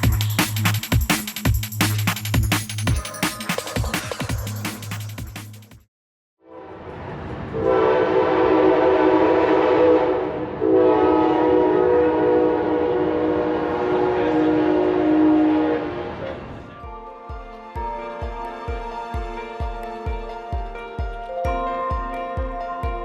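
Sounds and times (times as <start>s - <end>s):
train horn blasts: 6.4s - 16.4s.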